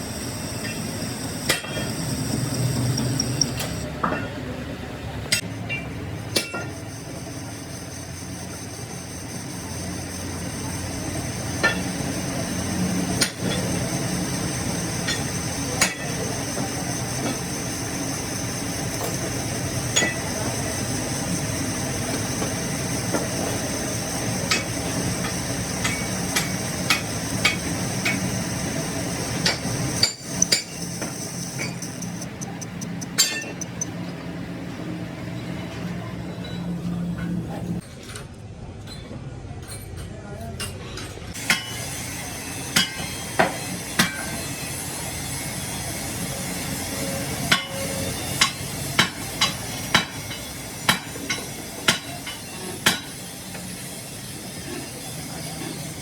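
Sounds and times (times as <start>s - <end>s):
machine humming: 0.0s - 37.8s.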